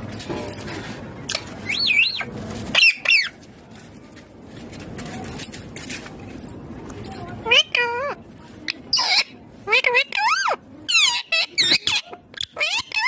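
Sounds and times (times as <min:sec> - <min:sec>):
parakeet calling: 0:08.9 - 0:13.0.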